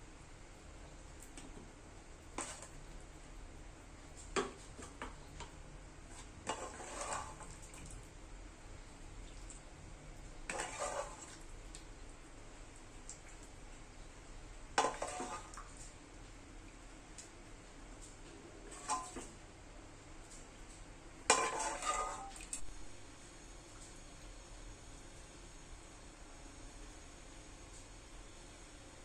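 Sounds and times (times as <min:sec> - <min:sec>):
metal utensil scraping cookware: 0:06.5 - 0:07.4, 0:10.5 - 0:11.2, 0:14.8 - 0:15.5, 0:21.3 - 0:22.3.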